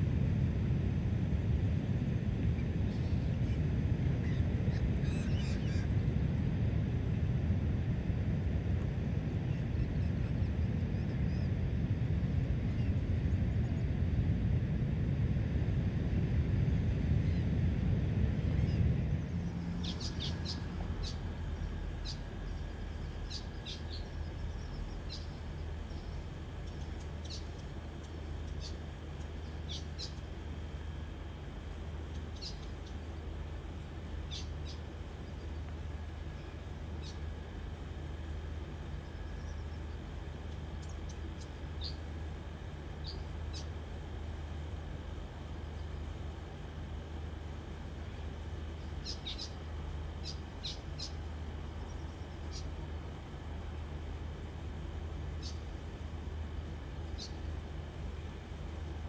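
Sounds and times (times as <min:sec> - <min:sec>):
steady low rumble: 0:00.0 - 0:59.0
high bird chirps: 0:19.6 - 0:27.6.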